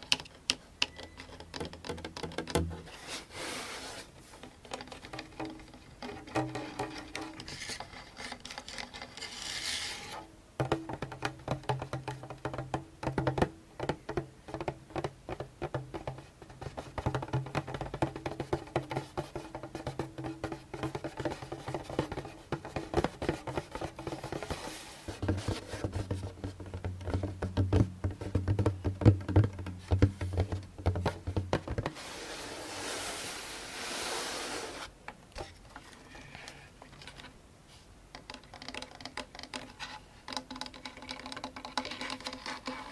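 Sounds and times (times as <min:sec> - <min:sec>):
scratching on a drum: 0:01.1 - 0:36.6
hand drum tapped lightly: 0:10.6 - 0:24.5, 0:25.1 - 0:31.9.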